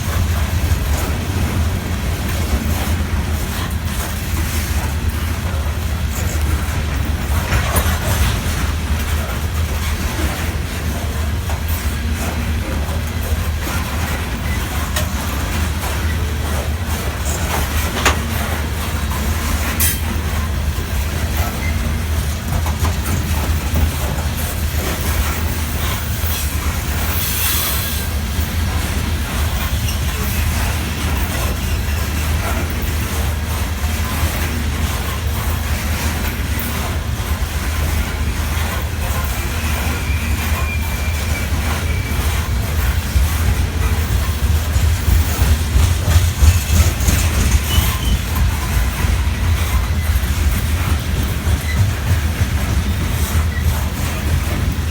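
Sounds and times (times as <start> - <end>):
wheel clanks and knocks: 0.0 - 26.4, 28.4 - 54.9
freight train rumbling: 0.0 - 54.9
faint wheel squeal: 39.5 - 42.5, 47.4 - 48.8.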